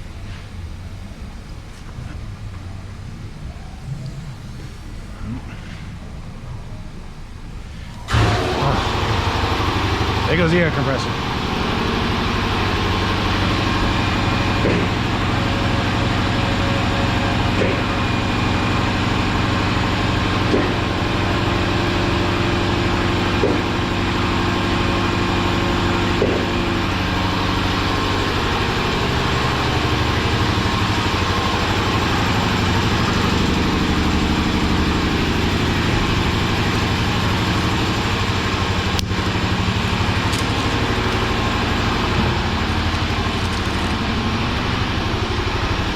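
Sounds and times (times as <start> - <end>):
air compressor running: 7.6 - 45.9.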